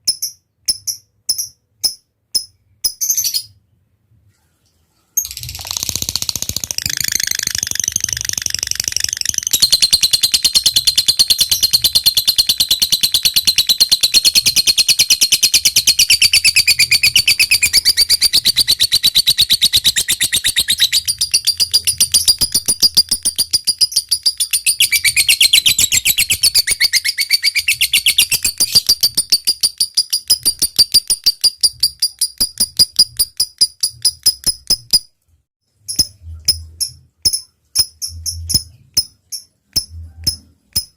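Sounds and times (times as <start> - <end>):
bird chattering trill: 5.3 - 35.0.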